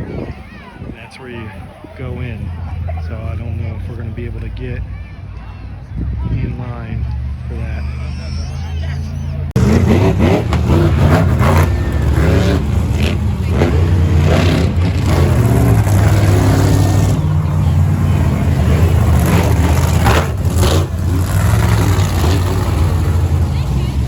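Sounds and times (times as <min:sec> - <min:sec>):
people's voices: 0:00.0 - 0:24.0
engine running steadily: 0:09.3 - 0:24.0.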